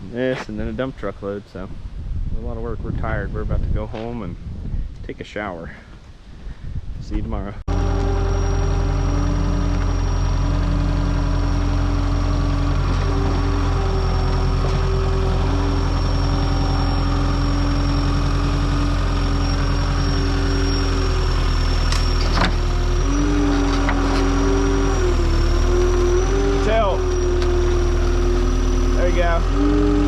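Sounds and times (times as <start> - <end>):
engine idling: 7.7 - 30.0.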